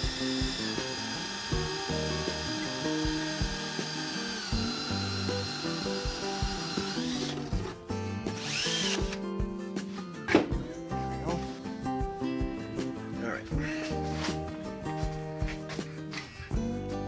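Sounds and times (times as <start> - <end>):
power drill motor whine: 0.0 - 7.6, 8.4 - 9.2.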